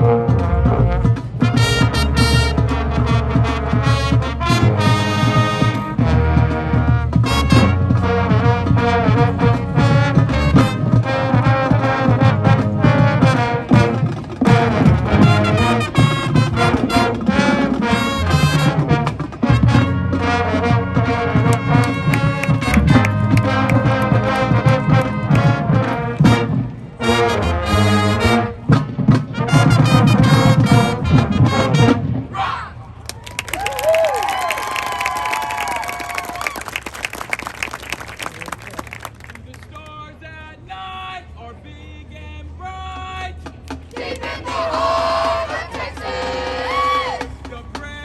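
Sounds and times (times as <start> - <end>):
brass chords: 0.0 - 32.3
marching band playing: 0.0 - 32.3, 33.2 - 39.7, 43.4 - 48.0
trombones and trumpets: 0.0 - 32.4.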